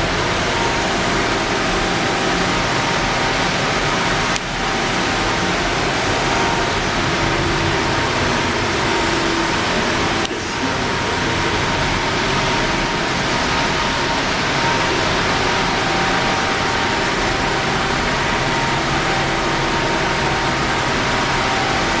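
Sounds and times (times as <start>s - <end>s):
machine whirring with high whine: 0.0s - 22.0s.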